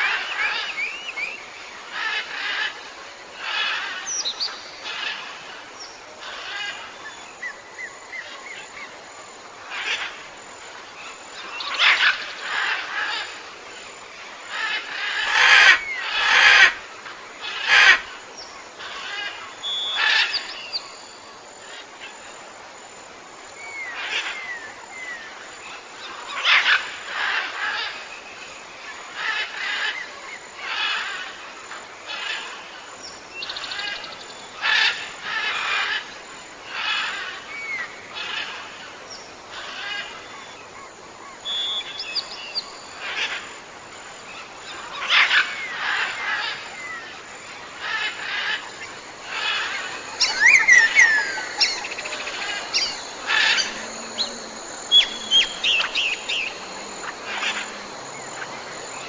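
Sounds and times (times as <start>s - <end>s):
harsh bird calls: 47.7s - 58.5s
thin bird chirps: 50.1s - 54.3s.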